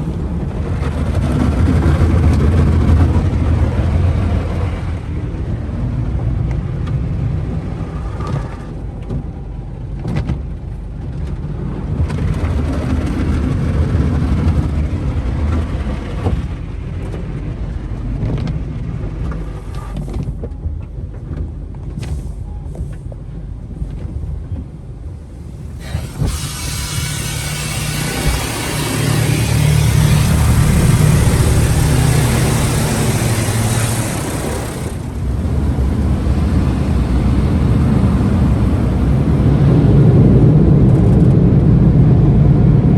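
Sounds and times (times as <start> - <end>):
car wash brushes rumbling: 0.0 - 5.0, 25.2 - 40.9
water spraying: 25.3 - 39.9.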